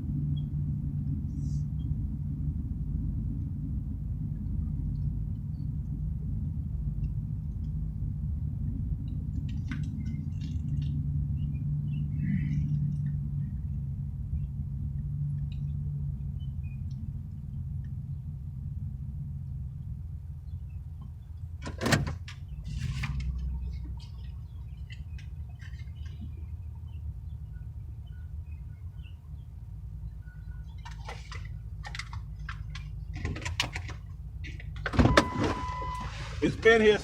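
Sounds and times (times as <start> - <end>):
truck engine rumbling: 0.0 - 37.0
faint clicks and rattles: 9.0 - 11.0, 30.6 - 35.0.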